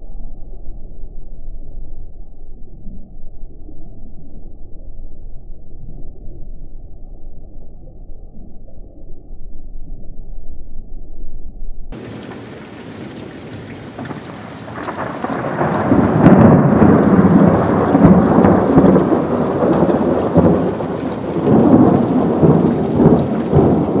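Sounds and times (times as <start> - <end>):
rain hissing: 12.0 - 24.0
thunder rumbling: 12.0 - 24.0.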